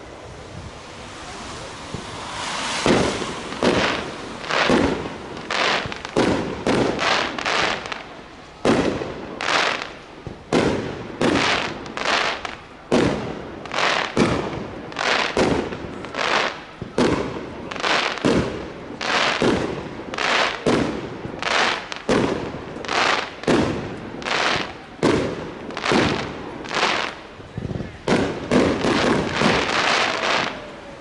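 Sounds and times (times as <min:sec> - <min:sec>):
fireworks bursting: 0:00.0 - 0:31.0.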